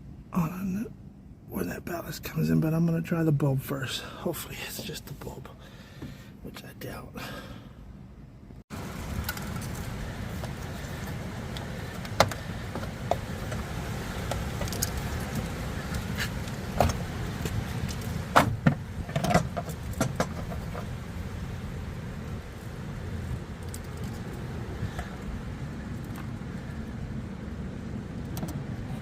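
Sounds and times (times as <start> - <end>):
steady low rumble: 0.0 - 29.0
hands handling parts clicking: 23.6 - 24.4.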